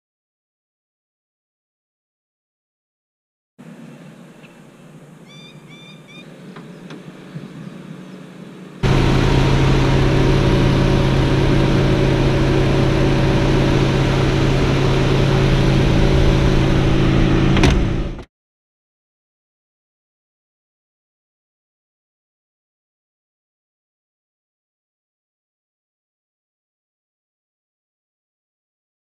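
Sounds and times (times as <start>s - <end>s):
faint chirps: 3.6s - 8.3s
car engine running: 6.3s - 18.2s.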